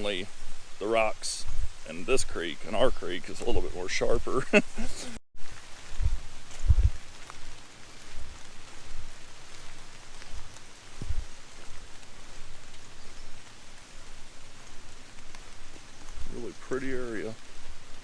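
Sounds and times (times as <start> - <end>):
hiss of running water: 0.0 - 18.0
dull low thumps: 1.4 - 1.9, 5.8 - 9.2, 10.3 - 11.4.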